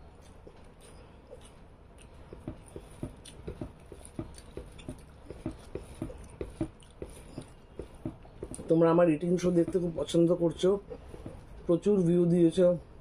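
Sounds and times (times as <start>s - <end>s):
chewing with wet mouth smacks: 0.1s - 8.6s.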